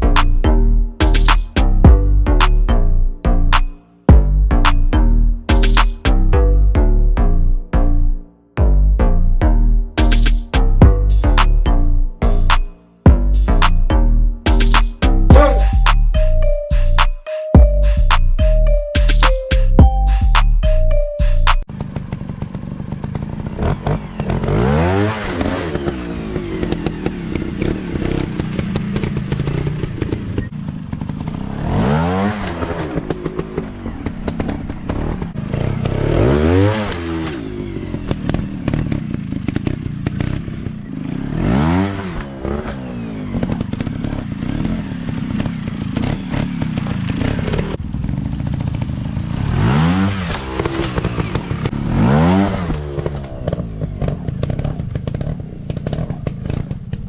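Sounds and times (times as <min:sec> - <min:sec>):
dirt-bike engines revving: 0:21.9 - 0:57.0.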